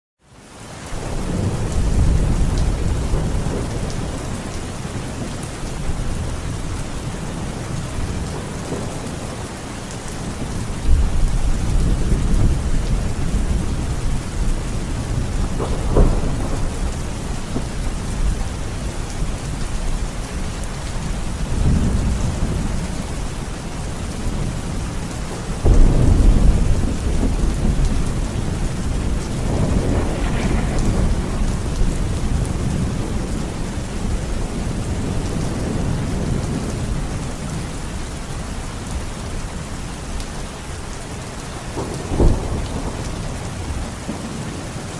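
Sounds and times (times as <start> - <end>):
heavy rain falling: 0.2 - 44.9
deep rumble: 29.2 - 32.8.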